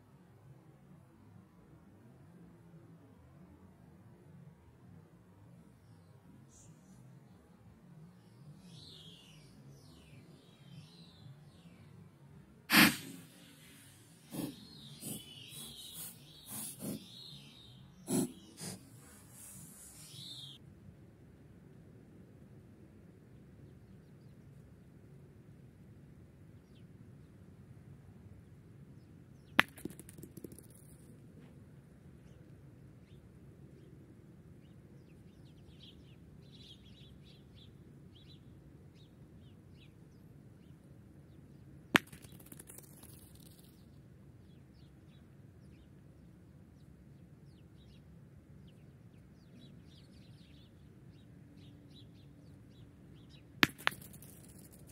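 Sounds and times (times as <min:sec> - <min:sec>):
bird chirps: 0:08.4 - 0:11.9, 0:12.7 - 0:20.6.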